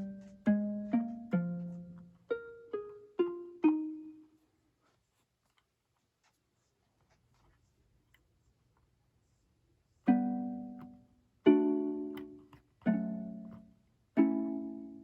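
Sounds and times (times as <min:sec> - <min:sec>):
plucked-string notes: 0:00.0 - 0:04.3, 0:10.1 - 0:15.0.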